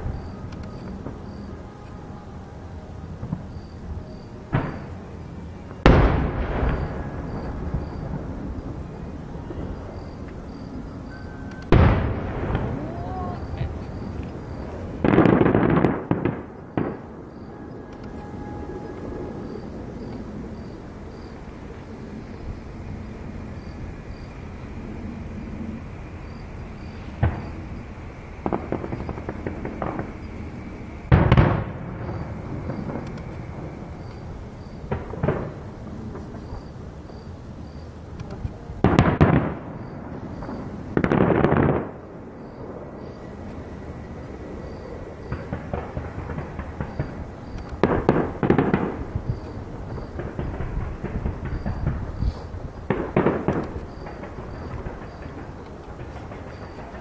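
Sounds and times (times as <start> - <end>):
firework crackling: 0.0 - 57.0
rumbling firework blasts: 0.0 - 57.0
firework booms: 3.2 - 5.0, 5.8 - 43.2, 44.2 - 57.0.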